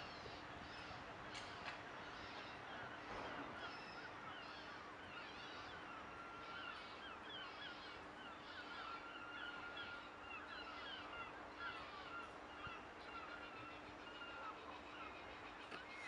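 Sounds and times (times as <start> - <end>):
birds chirping: 0.0 - 16.0
faint steady hum: 0.0 - 16.0.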